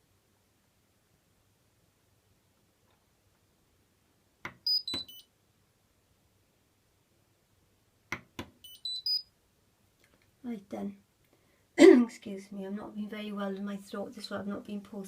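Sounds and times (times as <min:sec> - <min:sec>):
falling electronic beeps: 0:04.7 - 0:05.2, 0:08.6 - 0:09.3.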